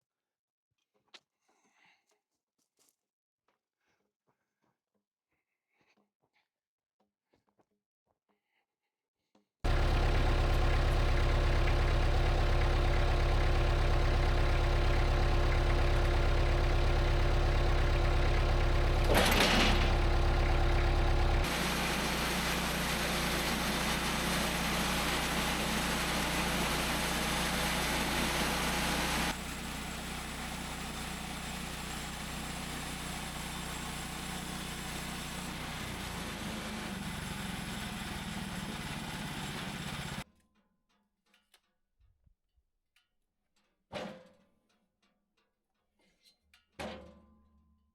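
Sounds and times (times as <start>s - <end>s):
sawmill engine humming: 9.7s - 40.2s.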